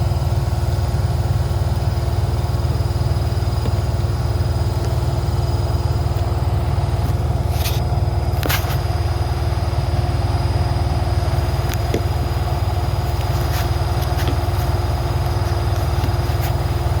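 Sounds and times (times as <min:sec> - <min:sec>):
washing machine spinning: 0:00.0 - 0:17.0
scraping clicks: 0:13.0 - 0:17.0.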